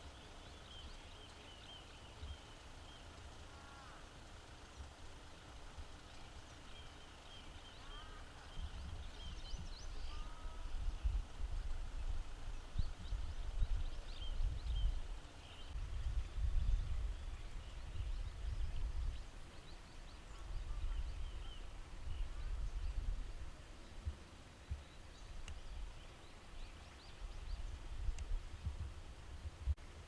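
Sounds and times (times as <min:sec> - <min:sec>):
wind rumbling on microphone: 0:07.9 - 0:29.9.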